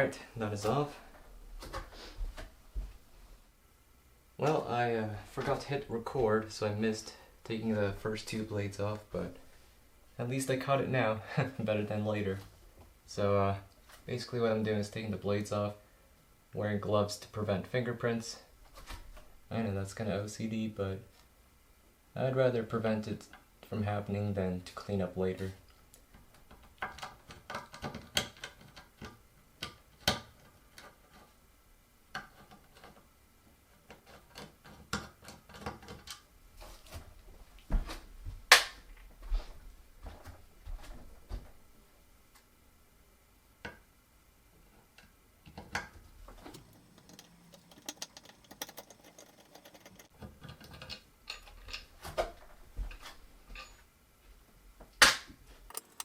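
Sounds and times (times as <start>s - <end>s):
ceiling fan parts clicking and knocking: 45.5s - 51.9s, 55.7s - 56.0s.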